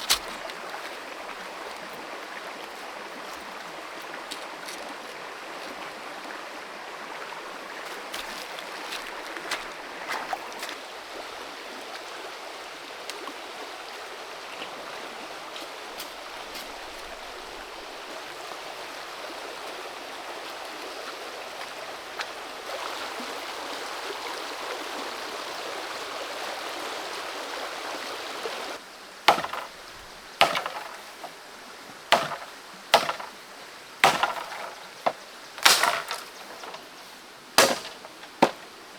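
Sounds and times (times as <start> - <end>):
creek rushing: 0.0 - 38.9
sharp knocks: 29.3 - 29.8, 30.4 - 31.3, 32.1 - 33.4, 34.0 - 36.8, 37.6 - 38.6.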